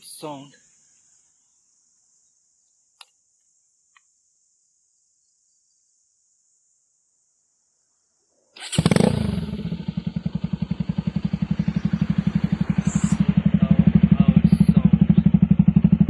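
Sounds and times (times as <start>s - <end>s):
motorcycle engine starting and idling: 8.6s - 16.0s.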